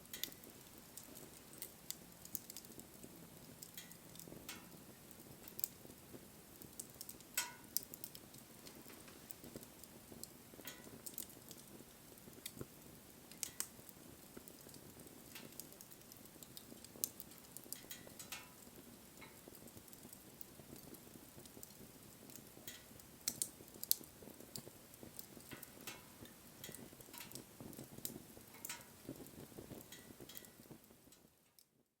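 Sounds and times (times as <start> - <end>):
bonfire crackling and popping: 0.0 - 31.9
soft rustle of flames: 0.0 - 32.0.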